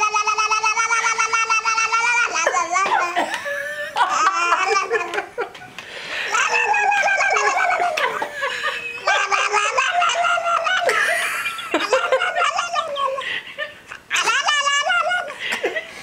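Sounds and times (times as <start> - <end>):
baby squealing: 0.0 - 3.2, 6.3 - 10.9, 14.1 - 15.4.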